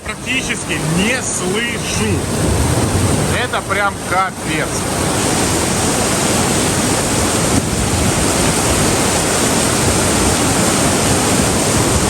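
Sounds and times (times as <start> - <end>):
heavy rain pouring: 0.0 - 12.0
wind noise on microphone: 0.0 - 12.0.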